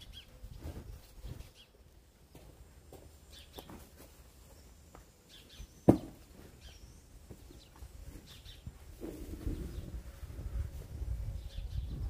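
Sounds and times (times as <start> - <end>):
small birds chirping: 0.0 - 10.0, 11.3 - 12.0.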